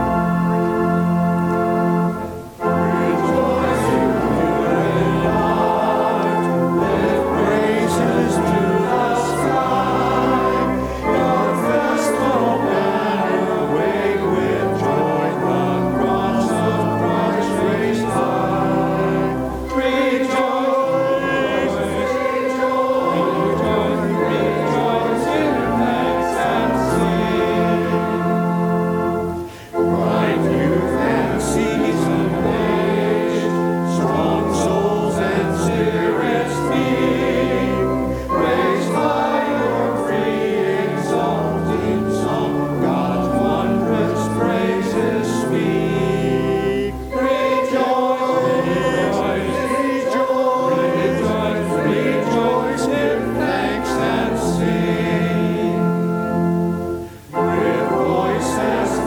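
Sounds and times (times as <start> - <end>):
choir singing a hymn: 0.0 - 59.0
singers breathing: 10.8 - 11.1, 29.4 - 29.9, 38.0 - 38.4.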